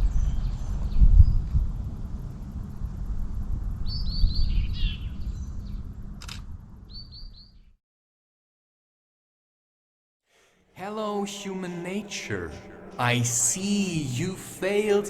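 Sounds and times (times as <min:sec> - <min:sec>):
bird chirping: 0:00.0 - 0:01.6, 0:03.8 - 0:05.9, 0:06.9 - 0:07.7
low rumbling background noise: 0:00.0 - 0:07.0
sharp click: 0:06.2 - 0:06.5.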